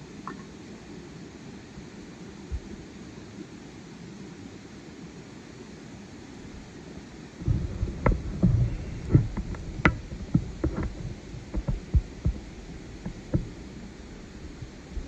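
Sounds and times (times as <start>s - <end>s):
irregular knocks and thumps: 7.4s - 15.0s.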